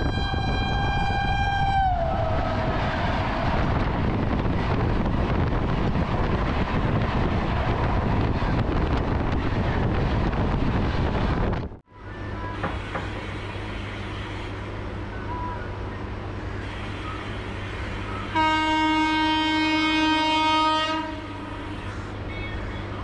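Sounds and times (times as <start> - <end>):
locomotive horn: 0.0 - 3.3, 16.6 - 21.8
wheels rushing on rails: 0.0 - 23.0.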